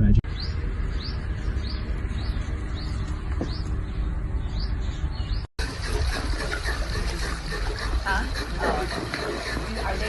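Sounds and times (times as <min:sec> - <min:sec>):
steady low hum: 0:00.0 - 0:10.0
bird chirping: 0:00.3 - 0:05.5.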